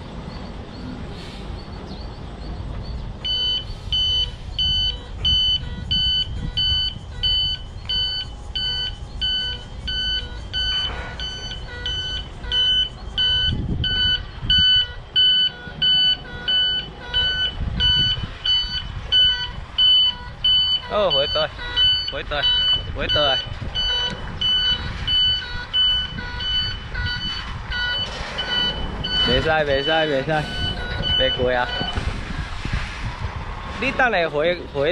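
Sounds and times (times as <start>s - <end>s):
truck reversing alarm beeping: 0.0s - 32.2s, 33.8s - 34.9s
diesel engine running: 0.0s - 34.9s.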